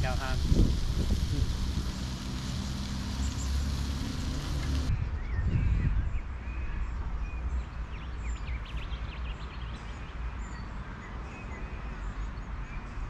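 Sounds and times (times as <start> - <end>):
birds chirping and squeaking: 0.0 - 4.9.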